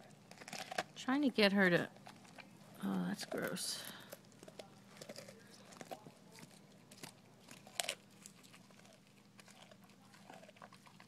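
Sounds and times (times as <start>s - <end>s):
dog crunching bones: 0.0s - 1.0s, 1.6s - 11.0s.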